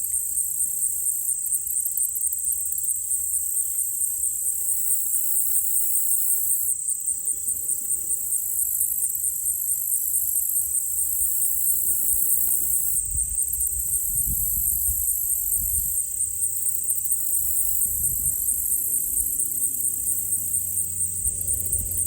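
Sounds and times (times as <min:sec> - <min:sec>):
insects trilling: 0:00.0 - 0:22.0
faint low rumble: 0:11.7 - 0:22.0.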